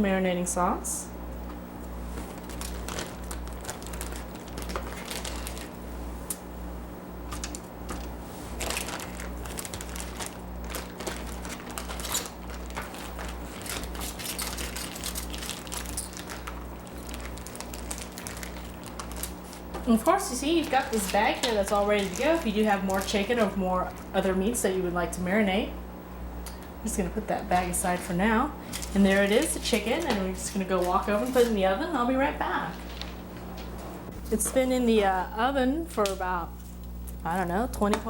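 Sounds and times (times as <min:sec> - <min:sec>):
steady low hum: 0:00.0 - 0:38.0
plastic bag crinkling: 0:02.1 - 0:05.8, 0:07.3 - 0:24.6, 0:27.6 - 0:34.3.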